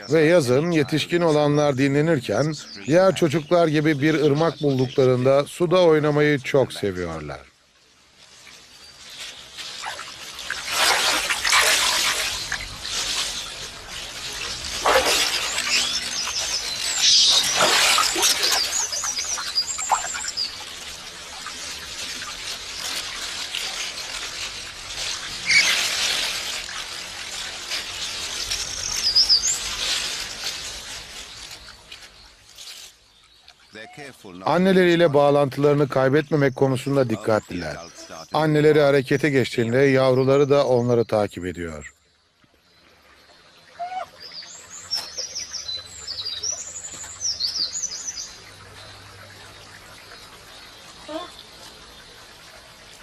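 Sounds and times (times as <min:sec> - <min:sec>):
bird chirping: 0:00.0 - 0:06.7, 0:12.2 - 0:22.0
songbird singing: 0:00.0 - 0:07.6, 0:11.4 - 0:25.9, 0:26.7 - 0:53.0
river water running: 0:00.0 - 0:53.0
water splash: 0:08.0 - 0:38.3.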